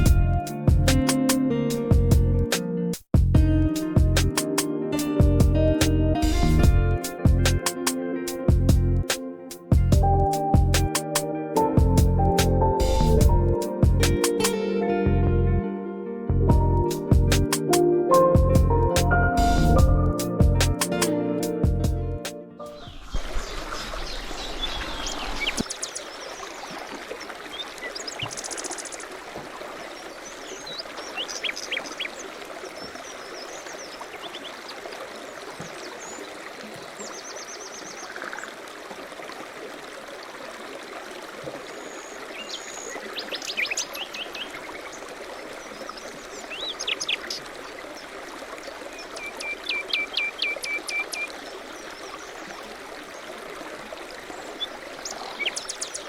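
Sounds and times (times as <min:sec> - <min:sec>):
songbirds singing and chirping: 0:22.6 - 0:29.2, 0:29.8 - 0:38.5, 0:41.7 - 0:53.4, 0:54.3 - 0:56.0
river water rushing: 0:22.8 - 0:56.0.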